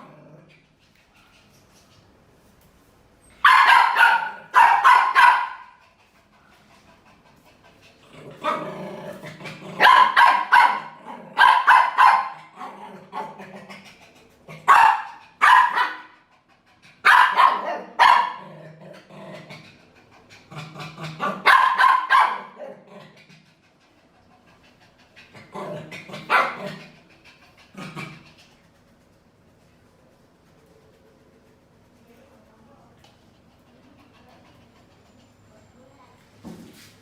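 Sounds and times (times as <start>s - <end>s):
dog barking: 3.4s - 5.8s, 9.8s - 12.5s, 14.6s - 16.2s, 17.0s - 18.4s, 21.2s - 22.7s, 26.2s - 26.8s.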